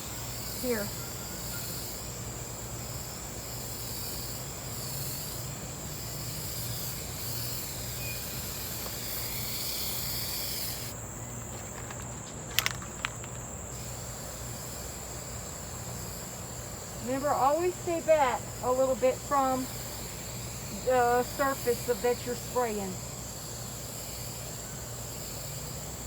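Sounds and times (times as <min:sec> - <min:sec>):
aerosol spray hissing: 0:00.0 - 0:11.0, 0:13.7 - 0:26.0
sharp clicks: 0:11.6 - 0:13.4.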